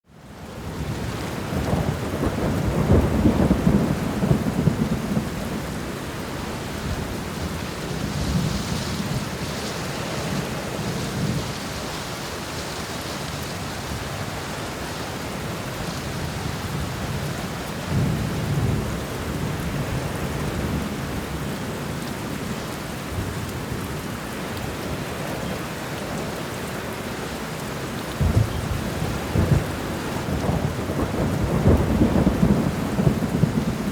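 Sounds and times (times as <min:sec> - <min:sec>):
heavy rain: 0:00.0 - 0:33.9
thunder rumbling: 0:00.6 - 0:12.2, 0:28.1 - 0:33.9.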